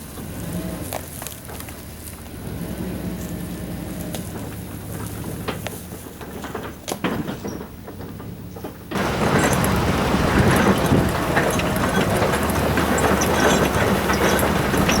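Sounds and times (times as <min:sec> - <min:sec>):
vehicle engine running: 0:00.0 - 0:15.0
loud clattering rattle: 0:04.4 - 0:15.0.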